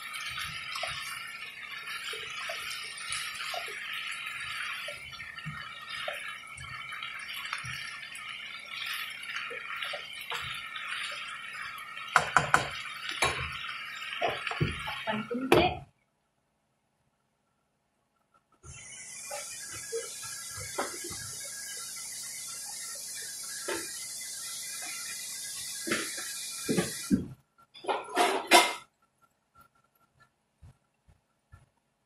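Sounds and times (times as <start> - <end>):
food sizzling in a pot: 0.0 - 15.7, 18.6 - 27.4.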